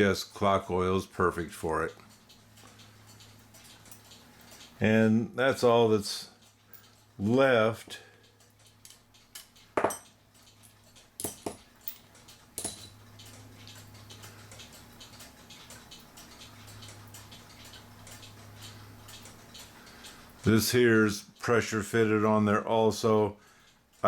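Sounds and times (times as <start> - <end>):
faint steady hum: 0.0 - 24.0
small metal parts clicking: 8.6 - 13.8.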